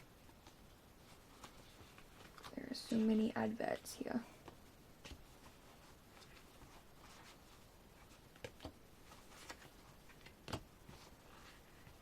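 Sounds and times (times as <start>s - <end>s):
paper cards rustling and tapping: 8.0s - 12.0s.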